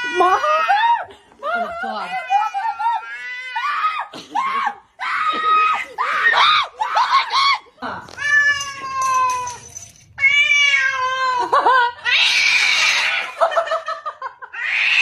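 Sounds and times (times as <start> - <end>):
cat yowling: 14.6 - 15.0.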